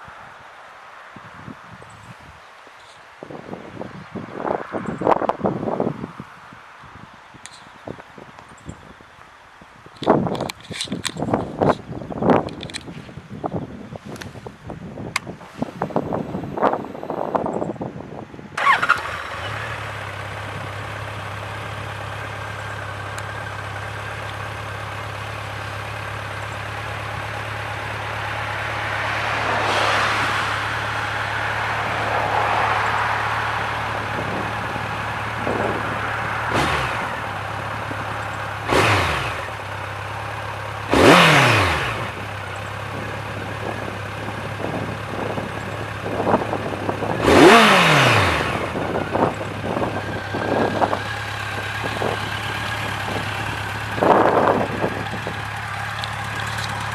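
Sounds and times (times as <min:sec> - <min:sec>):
motorcycle engine starting and idling: 0:10.0 - 0:13.2, 0:18.4 - 0:56.9
engine throttle blips: 0:15.1 - 0:56.9.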